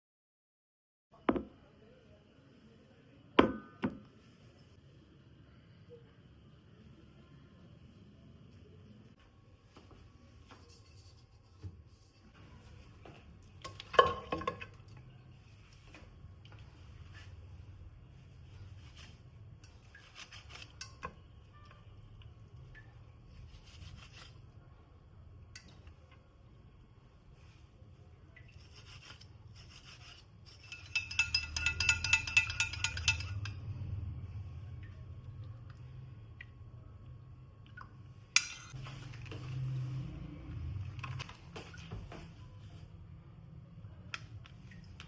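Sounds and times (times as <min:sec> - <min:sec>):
scraping and handling of dishes: 0:30.0 - 0:33.5, 0:38.4 - 0:39.9
light kitchen clicks and clinks: 0:30.6 - 0:33.7
low steady hum: 0:30.9 - 0:45.0.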